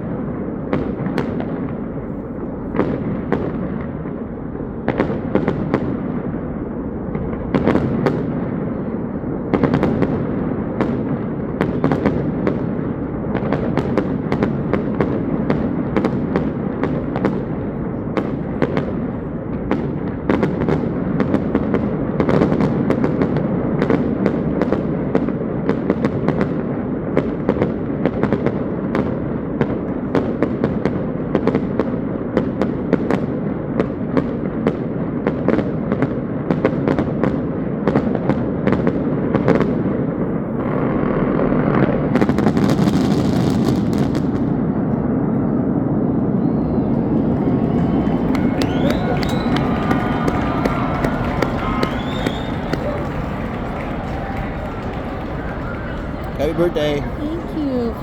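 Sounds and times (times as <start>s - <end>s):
fireworks banging and popping: 0.0s - 45.1s, 46.6s - 58.0s
continuous rumble: 46.9s - 58.0s.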